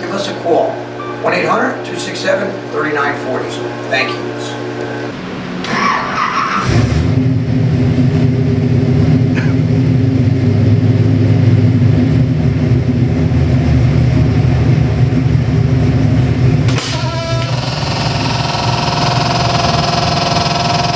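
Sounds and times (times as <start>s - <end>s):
deep loud engine running: 0.0s - 20.9s.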